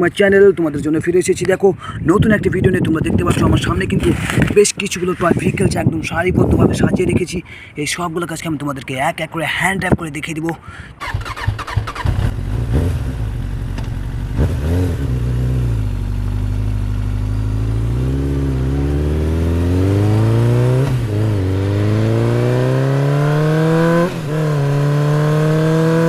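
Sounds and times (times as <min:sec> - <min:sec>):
scooter engine accelerating: 0:11.0 - 0:26.0.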